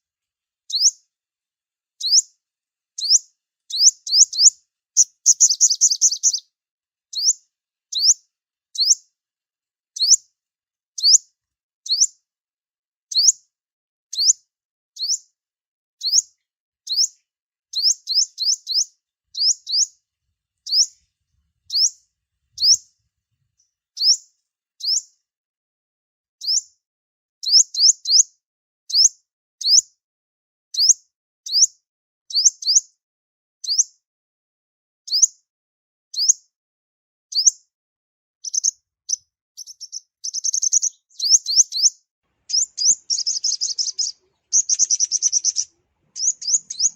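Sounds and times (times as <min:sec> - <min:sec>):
bird chirping high upward sweeps: 0:42.5 - 0:46.9.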